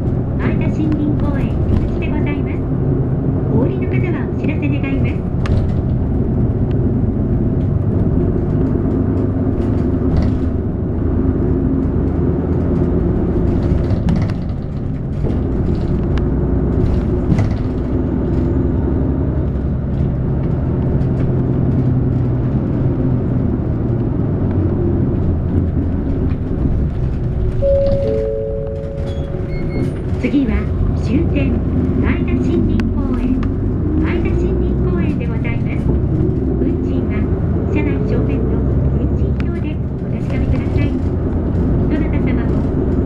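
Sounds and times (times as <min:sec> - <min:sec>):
bus engine rumbling: 0:00.0 - 0:43.0
road noise: 0:00.0 - 0:43.0.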